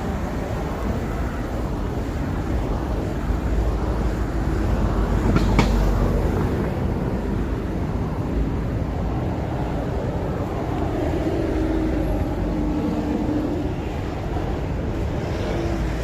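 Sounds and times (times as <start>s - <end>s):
city street traffic rumble: 0.0s - 16.0s.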